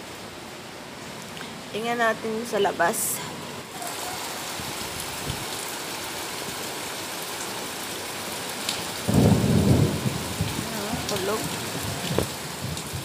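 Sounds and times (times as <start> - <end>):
heavy rain: 0.0 - 13.0
thunder rumble: 9.0 - 13.0.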